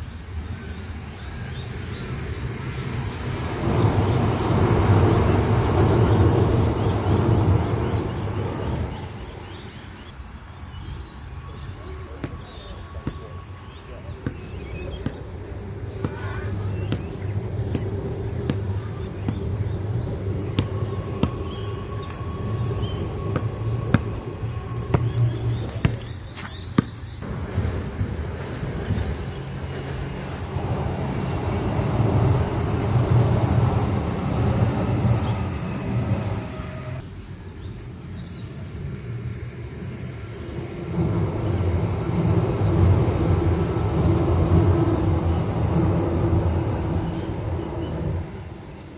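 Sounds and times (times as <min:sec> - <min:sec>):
thin steady whine: 0:00.0 - 0:37.3
train running drone: 0:00.0 - 0:48.9.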